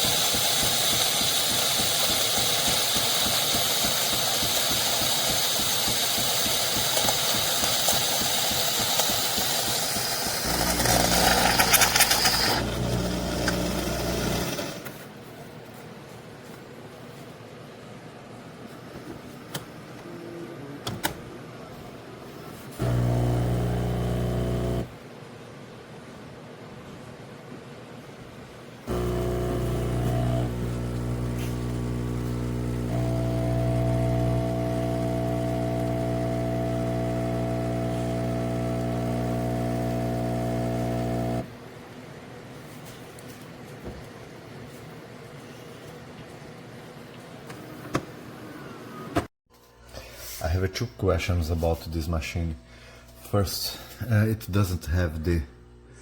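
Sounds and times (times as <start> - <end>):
espresso machine humming: 0.0 - 14.9, 22.8 - 25.0, 28.9 - 41.5.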